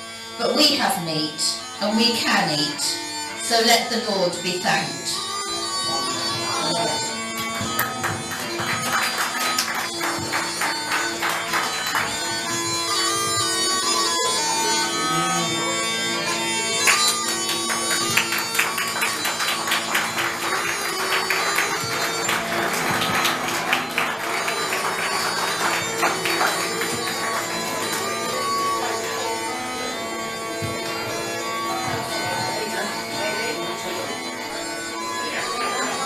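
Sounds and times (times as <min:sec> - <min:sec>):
small pipes playing a tune: 0:00.0 - 0:36.0
sharp claps or taps: 0:07.2 - 0:13.6, 0:16.8 - 0:28.2.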